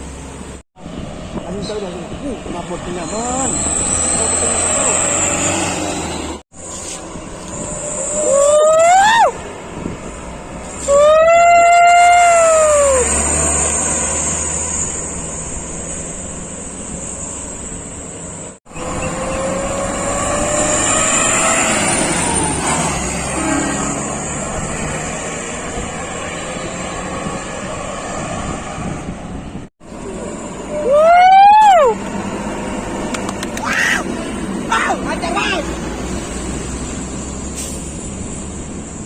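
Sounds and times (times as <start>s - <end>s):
road noise: 0.0s - 39.0s
truck engine rumble: 0.0s - 39.0s
truck horn blast: 23.2s - 24.1s.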